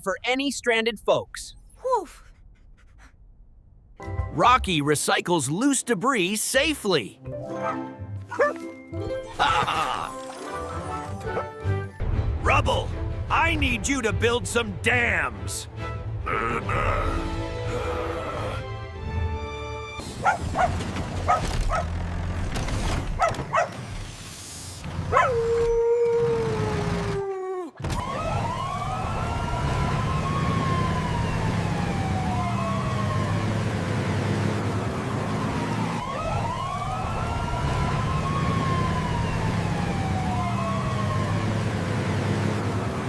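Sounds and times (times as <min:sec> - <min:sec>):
cartoon puppy barking: 0:07.6 - 0:08.6, 0:20.2 - 0:20.7, 0:21.3 - 0:21.9, 0:23.2 - 0:23.8, 0:25.1 - 0:25.7
siren wailing: 0:25.2 - 0:43.0.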